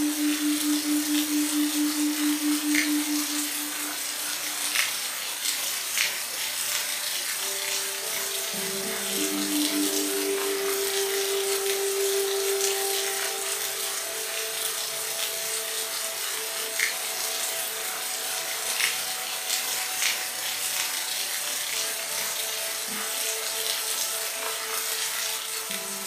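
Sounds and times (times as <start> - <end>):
faint drone of held tones: 0.0 - 4.9, 7.4 - 18.9
steady rain falling: 0.0 - 26.0.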